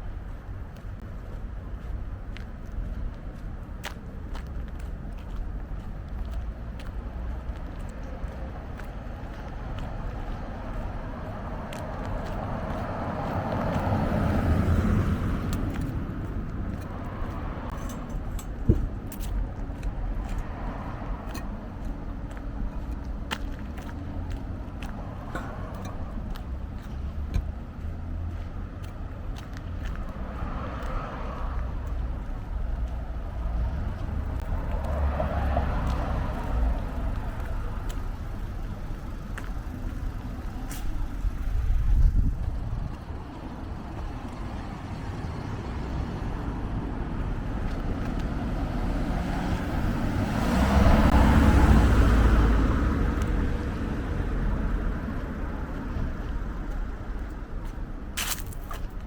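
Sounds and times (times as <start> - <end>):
cars passing on a street: 0.0 - 59.0
steady traffic rumble: 0.0 - 59.0.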